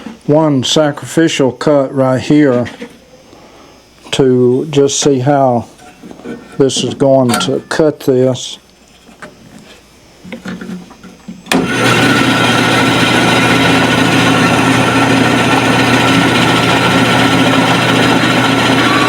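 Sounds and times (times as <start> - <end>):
faint handling sounds: 5.6 - 11.3
bandsaw blade whirring: 11.5 - 19.0
bandsaw motor hum: 11.5 - 19.0.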